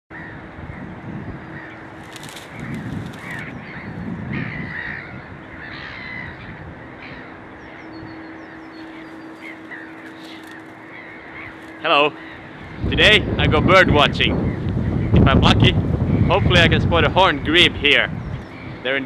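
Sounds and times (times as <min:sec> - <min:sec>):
birds harsh calls: 0:00.2 - 0:13.6
wind rumble: 0:00.3 - 0:07.2, 0:08.0 - 0:18.9.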